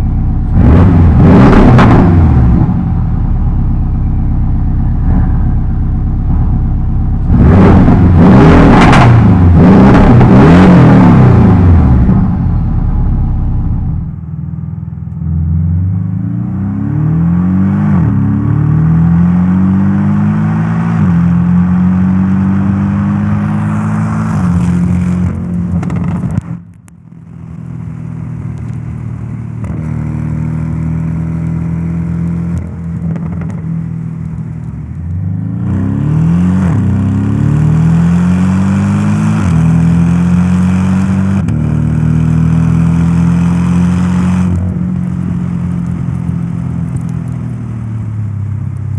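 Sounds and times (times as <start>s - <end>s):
car engine accelerating through gears: 0.0s - 3.2s, 4.7s - 14.0s, 15.1s - 26.6s, 35.1s - 47.4s.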